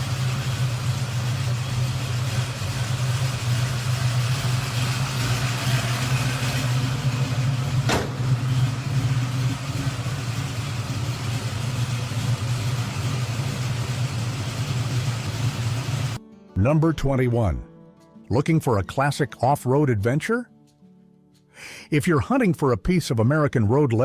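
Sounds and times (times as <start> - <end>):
car engine idling: 0.0 - 16.2
sharp click: 7.9 - 8.1.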